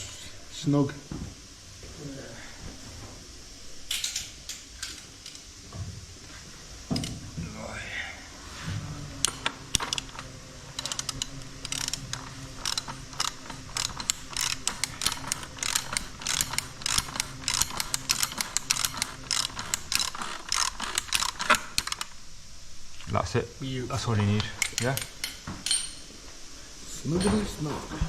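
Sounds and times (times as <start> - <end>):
ratchet wrench clicking: 9.2 - 22.2.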